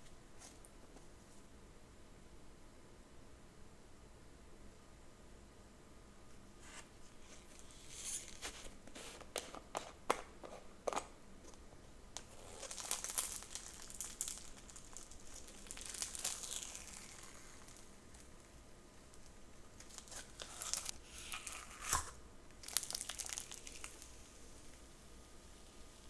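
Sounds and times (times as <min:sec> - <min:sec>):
plastic packaging crinkling: 0:10.9 - 0:24.8.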